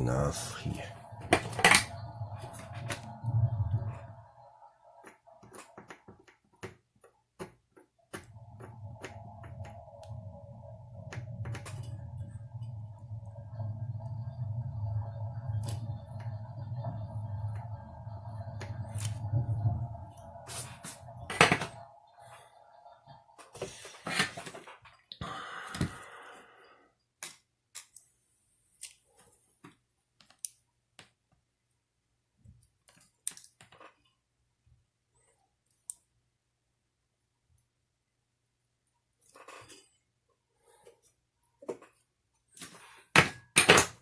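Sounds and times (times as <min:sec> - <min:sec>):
small parts clicking and rustling: 0:32.7 - 0:34.1.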